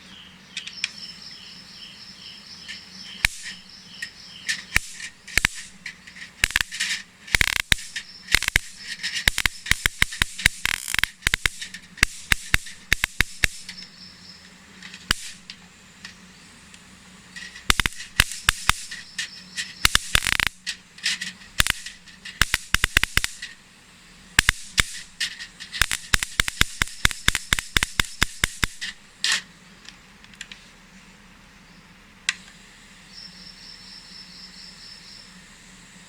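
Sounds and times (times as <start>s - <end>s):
faint high whine: 0.0s - 36.0s
mosquito racket zapping snaps: 2.7s - 13.9s, 14.9s - 16.2s, 17.4s - 23.6s, 24.4s - 29.5s.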